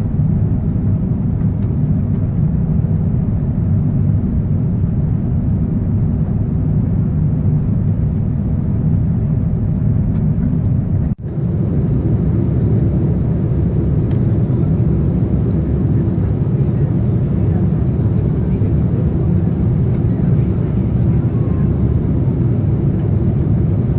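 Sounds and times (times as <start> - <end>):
airliner cabin engine rumble: 0.0 - 23.9.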